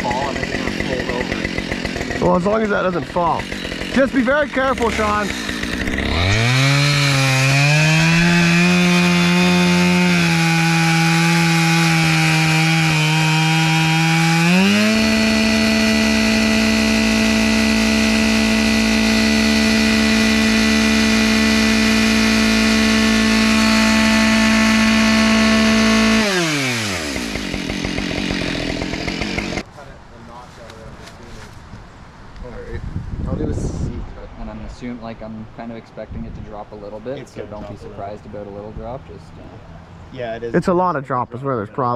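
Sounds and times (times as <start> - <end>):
chainsaw cutting wood: 0.0 - 29.7.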